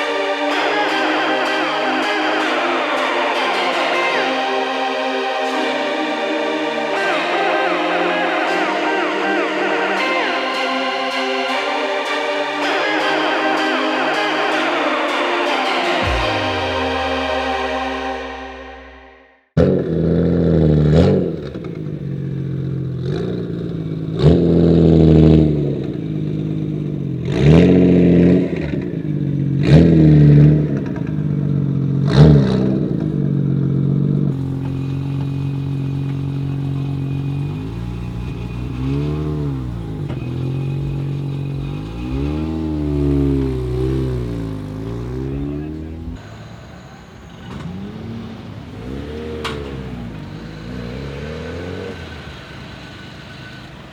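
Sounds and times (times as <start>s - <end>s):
car engine idling and revving: 19.6s - 53.9s.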